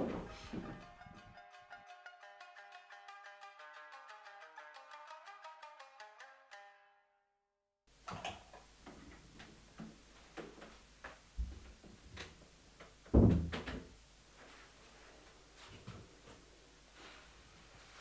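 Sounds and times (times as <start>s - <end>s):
footsteps: 0.0s - 1.3s
loud heavy thump: 13.1s - 13.7s.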